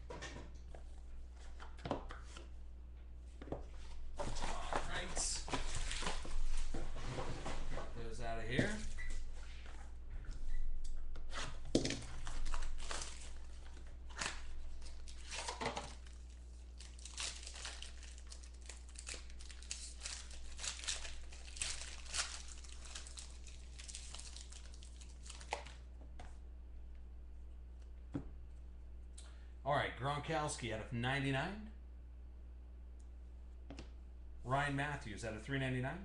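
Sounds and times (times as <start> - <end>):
plastic wrapping crinkling and tearing: 4.5 - 6.7, 11.6 - 25.9.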